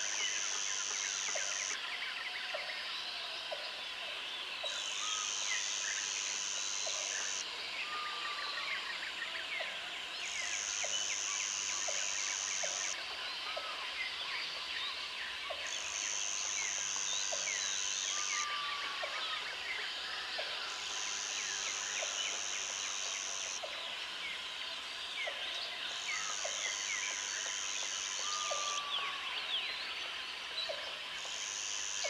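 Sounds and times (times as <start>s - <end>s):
insect buzzing: 0.0s - 1.8s, 5.0s - 7.4s, 10.4s - 13.0s, 15.7s - 19.0s, 20.7s - 23.6s, 31.2s - 32.0s.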